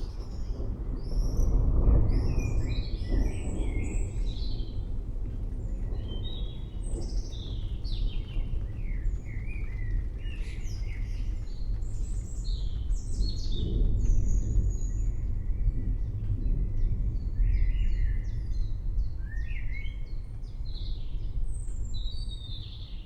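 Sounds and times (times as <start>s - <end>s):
songbirds chirping: 5.6s - 23.0s.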